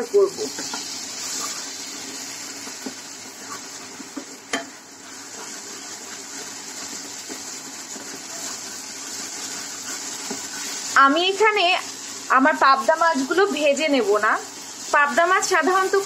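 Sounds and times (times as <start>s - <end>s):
spice paste sizzling in oil: 0.0s - 16.0s
spatula stirring and scraping: 0.5s - 11.0s.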